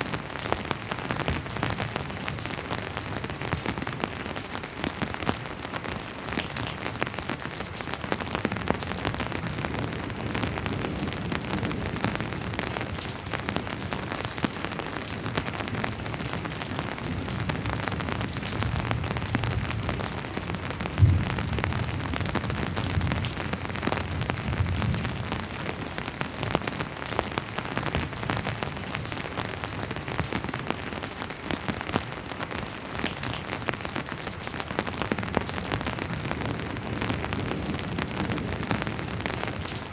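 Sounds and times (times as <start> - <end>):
steady rain with ticking drops: 0.0 - 39.9
distant thunder rumble: 18.7 - 25.2.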